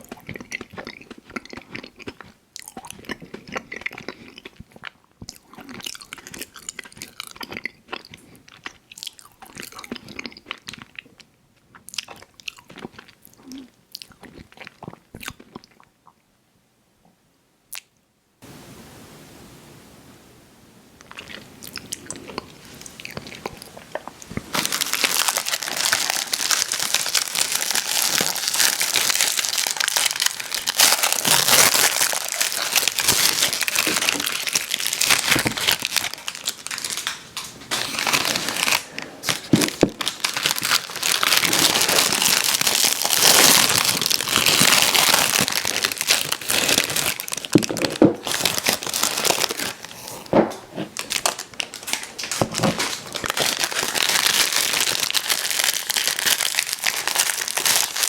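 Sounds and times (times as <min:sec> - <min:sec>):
candy wrappers crinkling: 0:21.0 - 0:50.3, 0:51.0 - 0:58.0.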